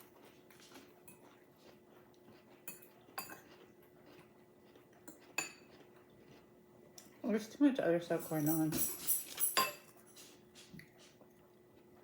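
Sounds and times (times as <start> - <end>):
cutlery clinking against a bowl: 2.6 - 3.7, 5.0 - 5.8, 8.2 - 10.4.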